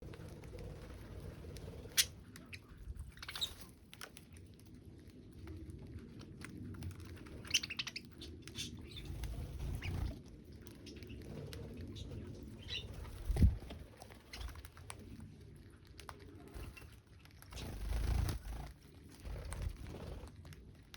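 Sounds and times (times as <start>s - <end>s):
small birds chirping: 0.0s - 4.6s, 7.1s - 15.2s, 16.3s - 20.2s.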